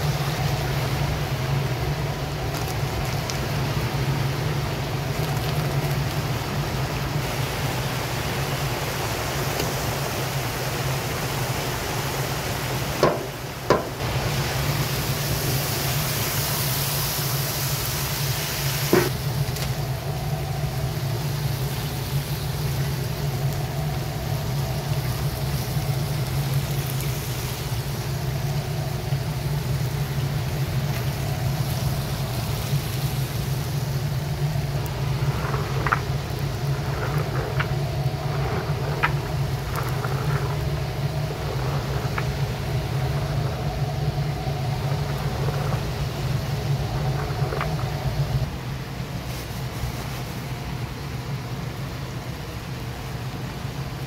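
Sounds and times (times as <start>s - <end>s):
vegetables sizzling in oil: 0.0s - 48.5s
sharp knocks: 13.0s - 14.0s
low drone: 19.0s - 48.9s.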